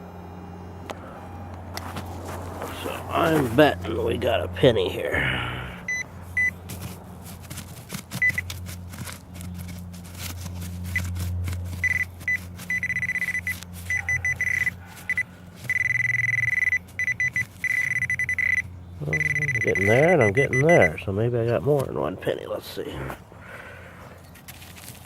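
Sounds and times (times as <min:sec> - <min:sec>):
steady low hum: 0:00.0 - 0:25.0
metal detector beeping: 0:05.9 - 0:06.6, 0:08.1 - 0:08.7, 0:10.6 - 0:21.1.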